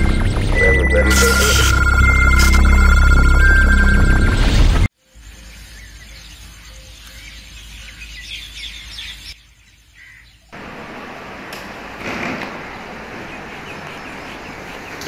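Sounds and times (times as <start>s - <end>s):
small birds chirping: 4.9s - 10.6s, 12.6s - 15.0s.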